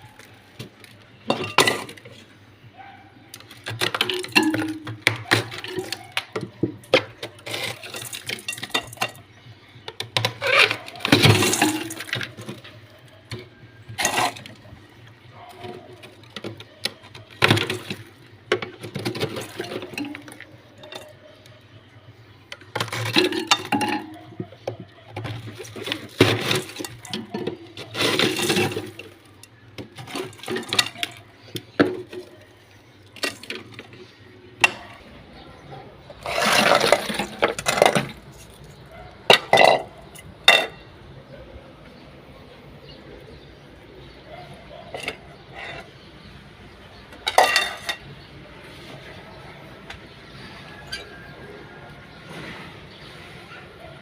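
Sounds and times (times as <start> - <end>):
glass shelves clinking: 0.0 - 2.2, 3.4 - 9.3, 10.0 - 21.3, 22.6 - 35.2, 35.8 - 41.0, 44.2 - 46.2, 46.9 - 48.2.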